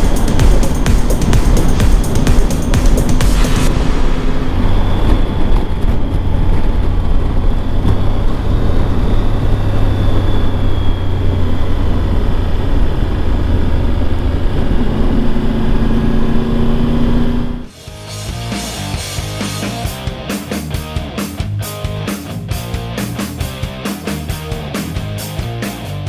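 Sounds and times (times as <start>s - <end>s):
motorcycle engine hum: 0.0s - 17.8s
road and wind noise: 0.0s - 20.2s.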